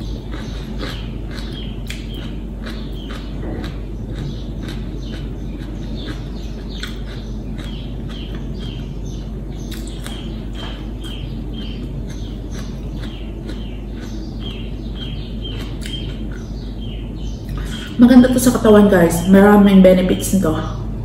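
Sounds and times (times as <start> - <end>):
crunching raw vegetables: 0.0 - 17.8
bird chirping: 0.0 - 21.0.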